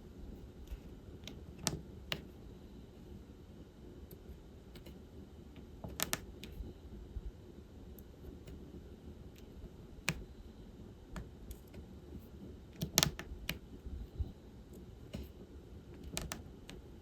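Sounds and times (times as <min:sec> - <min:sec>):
light plastic clicks and taps: 0:16.0 - 0:16.8.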